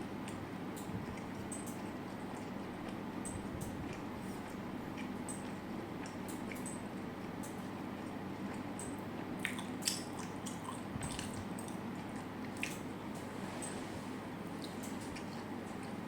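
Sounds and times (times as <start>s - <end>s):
wet squishy chewing: 0.2s - 6.8s, 7.4s - 12.9s.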